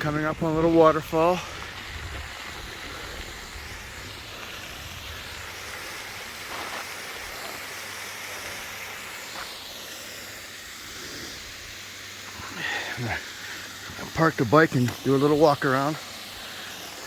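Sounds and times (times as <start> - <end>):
bicycle riding on trail: 0.0 - 17.0
wind buffeting microphone: 0.1 - 5.7.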